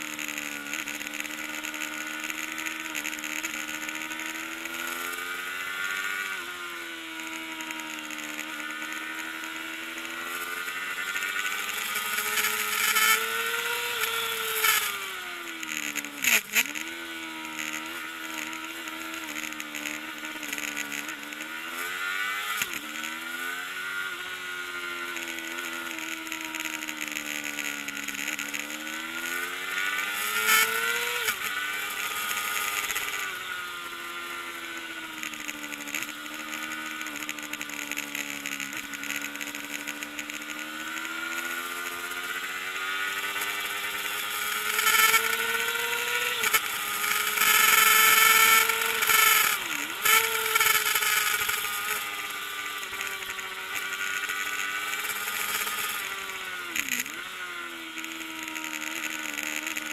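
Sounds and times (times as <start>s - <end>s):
race bike engine revving: 0.0s - 59.9s.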